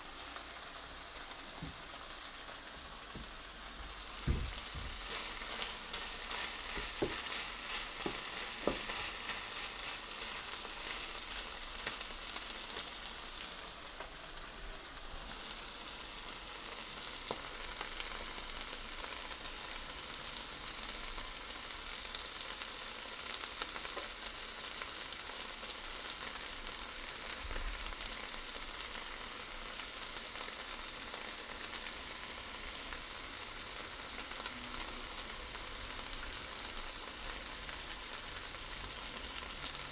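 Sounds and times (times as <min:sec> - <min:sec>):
food sizzling in a pan: 0:00.0 - 0:39.9
light knocks: 0:04.2 - 0:05.0.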